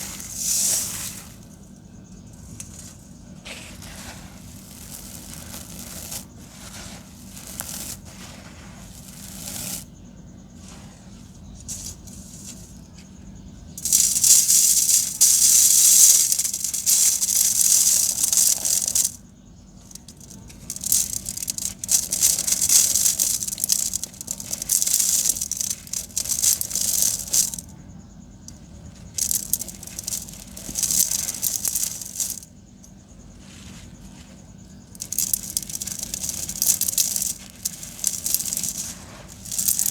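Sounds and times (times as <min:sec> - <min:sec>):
quiet crackling: 0:00.0 - 0:39.9
cement lumps crunching: 0:13.8 - 0:27.7, 0:28.4 - 0:32.5, 0:33.3 - 0:39.9.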